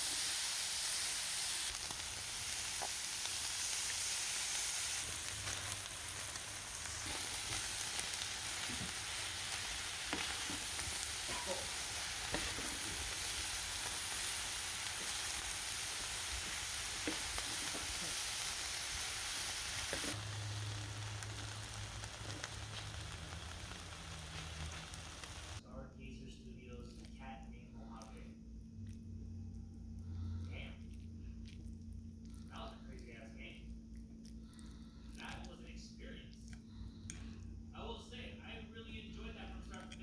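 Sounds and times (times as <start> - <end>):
food sizzling in a pan: 0.0 - 25.6.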